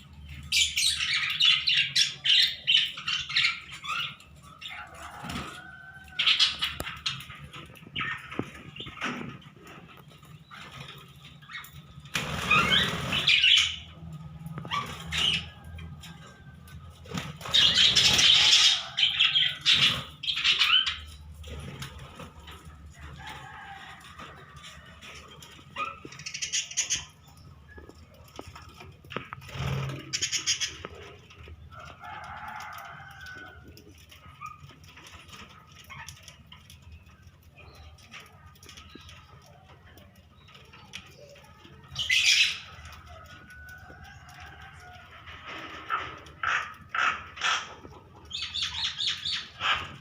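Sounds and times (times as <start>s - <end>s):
birds flapping wings: 6.6s - 13.6s, 16.8s - 18.8s, 27.8s - 31.3s
bird calls: 17.4s - 21.8s, 25.4s - 31.4s, 45.9s - 50.0s.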